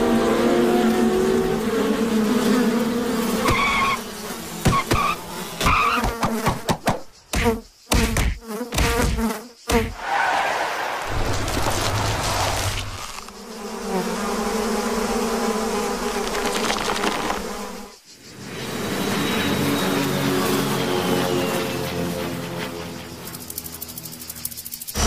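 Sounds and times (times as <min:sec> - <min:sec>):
cartoon insect buzzing: 0:00.1 - 0:06.7, 0:07.3 - 0:10.0.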